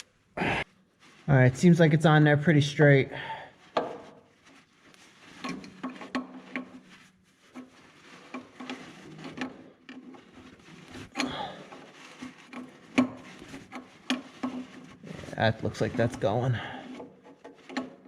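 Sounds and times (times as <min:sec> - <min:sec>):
tools clicking and scraping: 0:03.7 - 0:18.0.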